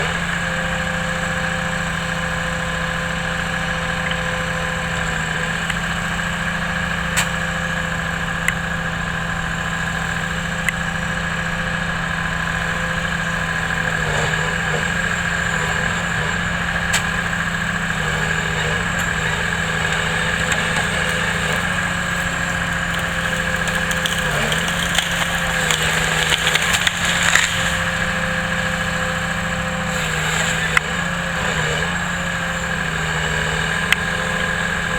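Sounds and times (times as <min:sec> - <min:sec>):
machinery engine running: 0:00.0 - 0:34.9
wood cracking and splintering: 0:00.0 - 0:34.9.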